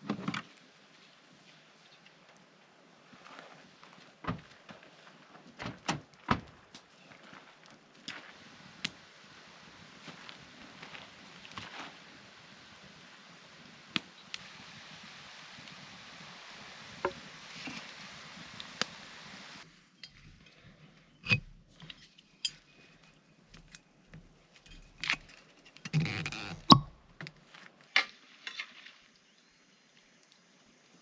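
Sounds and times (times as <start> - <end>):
steady hiss: 7.6 - 20.4.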